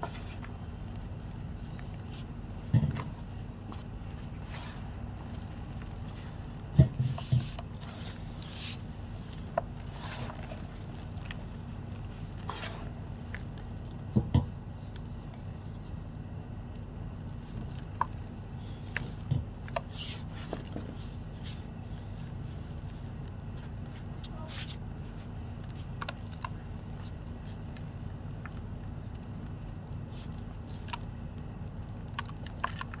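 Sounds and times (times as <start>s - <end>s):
chalk crunching and cracking: 7.1s - 33.0s.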